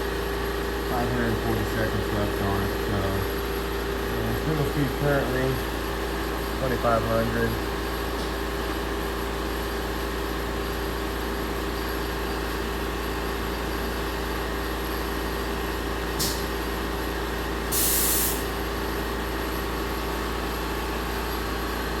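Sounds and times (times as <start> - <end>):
machine spindle humming: 0.8 - 8.3
air hiss: 17.7 - 18.5.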